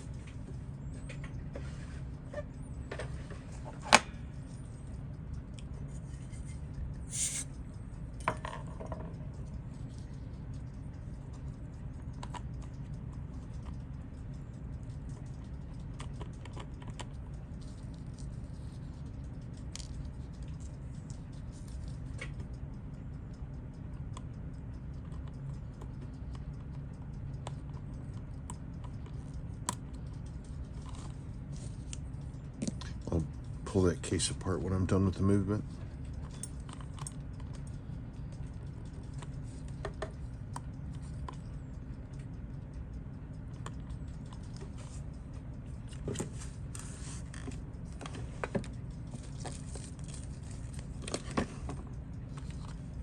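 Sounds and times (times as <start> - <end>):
steady low hum: 0.0 - 53.0
small tools clicking and tapping: 2.9 - 53.0
short hiss: 7.1 - 7.5.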